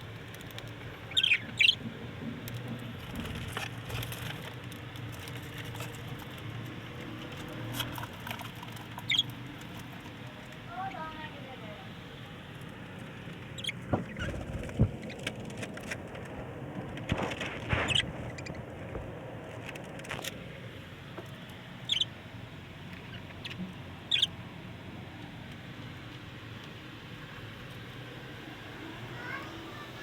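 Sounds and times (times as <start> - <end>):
parrot squeaking: 1.1 - 1.8, 9.1 - 9.3, 13.6 - 14.4, 17.8 - 18.6, 21.9 - 22.1, 23.1 - 24.3
clicks and scratching: 2.4 - 10.7.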